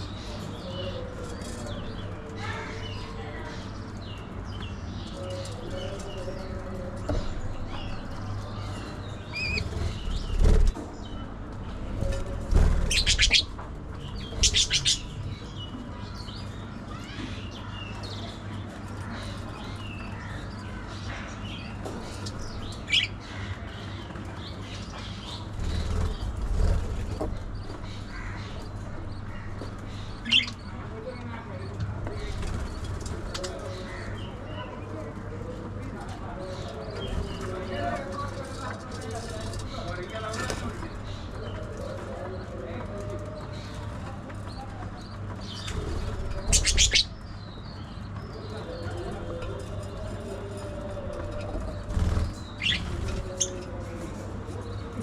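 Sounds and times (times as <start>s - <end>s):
budgies chirping and chattering: 0.0s - 55.0s
wings flapping: 51.5s - 53.5s.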